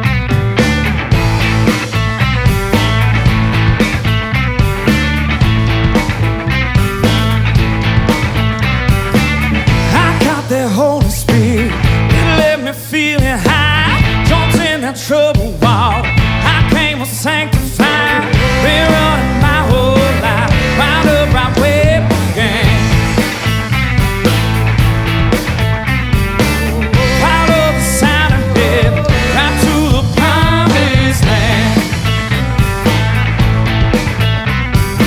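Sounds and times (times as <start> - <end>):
rock band playing live: 0.0 - 35.0
person singing: 9.7 - 23.4, 26.4 - 32.2
vibrato lead melody: 17.9 - 34.0.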